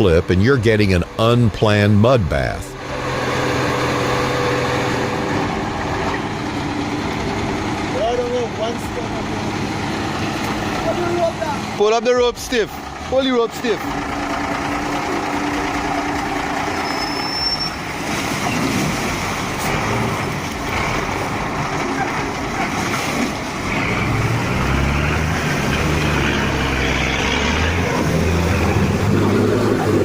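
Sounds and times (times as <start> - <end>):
people's voices: 0.0 - 2.8, 6.0 - 14.0
heavy truck engine running: 0.0 - 30.0
outdoor noise: 0.0 - 30.0.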